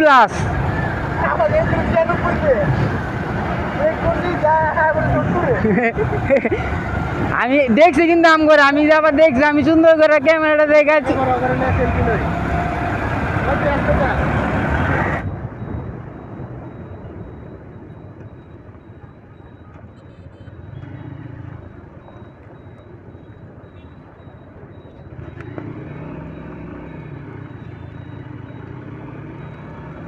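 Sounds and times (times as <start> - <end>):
motorcycle engine hum: 0.0 - 30.0
wind rumble on microphone: 15.0 - 20.0.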